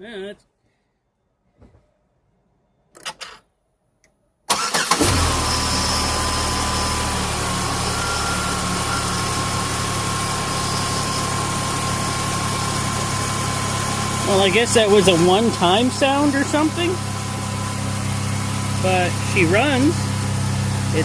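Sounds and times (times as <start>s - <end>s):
car engine starting and idling: 4.5s - 21.0s.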